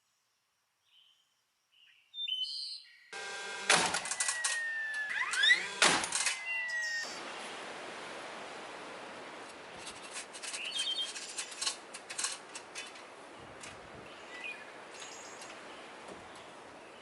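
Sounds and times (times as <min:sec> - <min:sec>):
steady background hiss: 0:03.2 - 0:17.0
birds chirping: 0:04.0 - 0:07.7, 0:09.6 - 0:11.9, 0:12.5 - 0:17.0.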